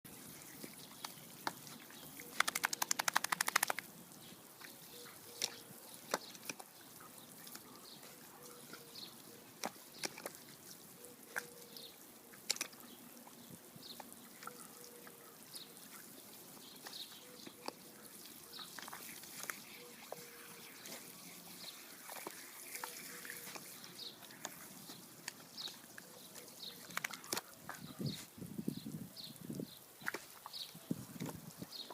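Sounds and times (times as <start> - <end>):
water sprinkler spraying: 0.1 - 31.9
rapid even ticks: 2.4 - 3.9
sharp clicks: 2.4 - 3.9.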